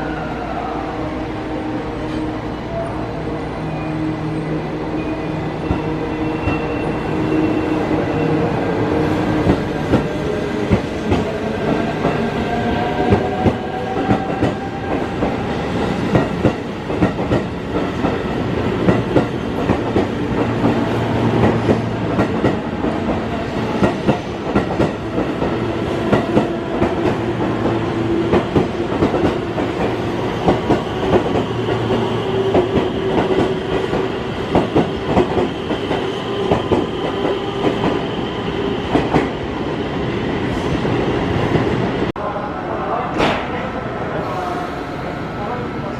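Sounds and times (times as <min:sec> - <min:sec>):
train wheels clacking on rails: 0:09.3 - 0:39.4.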